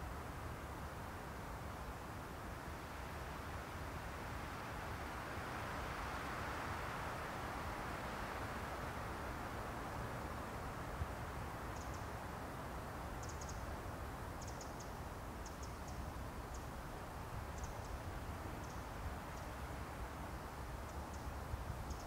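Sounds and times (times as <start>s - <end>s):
small bird ticking calls: 11.8s - 12.1s, 13.2s - 13.7s, 14.4s - 16.7s, 17.5s - 18.0s, 18.6s - 19.6s, 20.9s - 22.0s.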